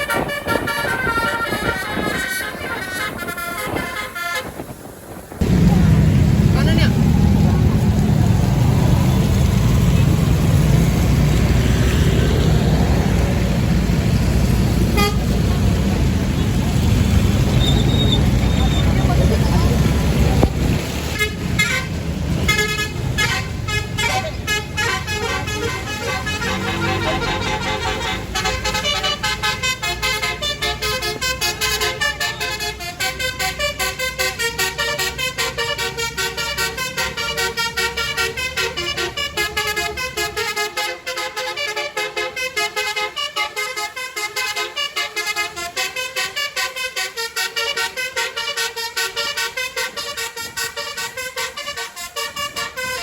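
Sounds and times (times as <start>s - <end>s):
multi-tone vehicle horn melody: 0.0s - 4.8s, 14.8s - 15.6s, 21.1s - 53.0s.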